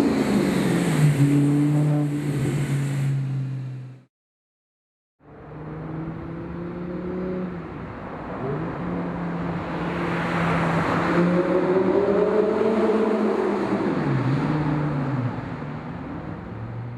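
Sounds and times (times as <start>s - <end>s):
car engine revving: 0.0s - 4.1s, 5.3s - 7.7s.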